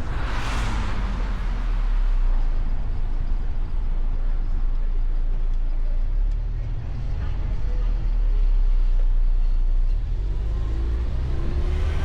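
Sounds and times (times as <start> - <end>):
rushing whoosh: 0.0 - 4.6
car driving rumble: 0.0 - 12.0.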